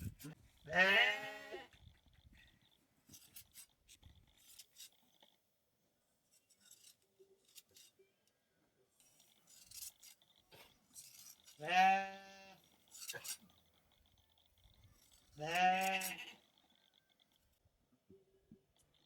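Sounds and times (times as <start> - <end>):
faint clicks and scrapes: 0.0 - 19.0
sheep bleating: 0.6 - 1.8, 11.5 - 12.6, 15.4 - 16.4.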